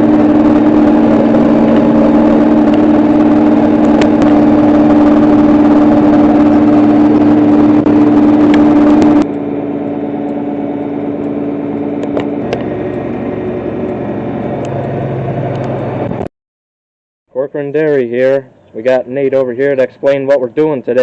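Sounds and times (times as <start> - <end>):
tractor diesel engine running: 0.0 - 16.3.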